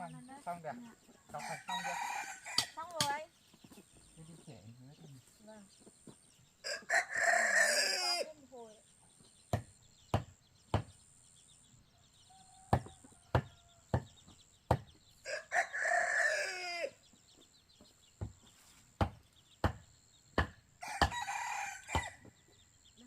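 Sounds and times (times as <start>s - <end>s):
rooster crowing: 1.4s - 2.8s, 6.6s - 8.3s, 12.3s - 14.0s, 15.2s - 17.0s, 20.8s - 22.3s
sharp knocks: 9.5s - 11.0s, 12.7s - 15.0s, 19.0s - 21.2s.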